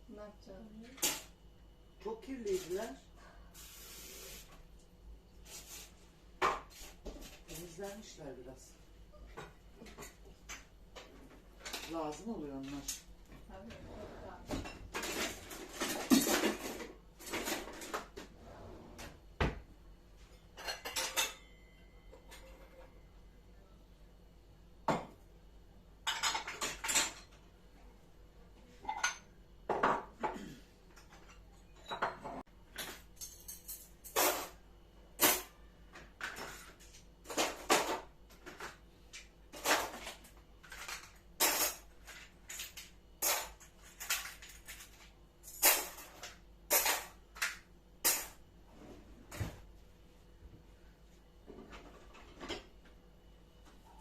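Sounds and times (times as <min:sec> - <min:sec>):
dishes and cutlery clattering: 0:14.4 - 0:18.1, 0:20.2 - 0:23.0, 0:26.0 - 0:27.4, 0:28.7 - 0:34.6, 0:39.6 - 0:48.4.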